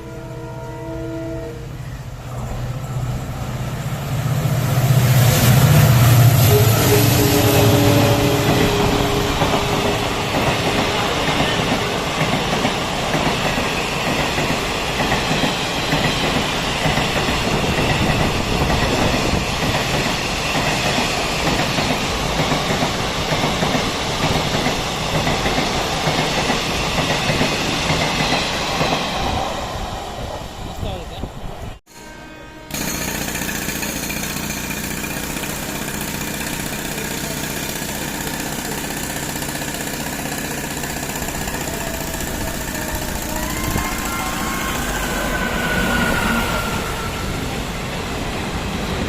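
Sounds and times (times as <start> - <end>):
train wheels on track: 1.7 - 31.8, 32.7 - 49.0
clickety-clack over rail joints: 8.4 - 29.0.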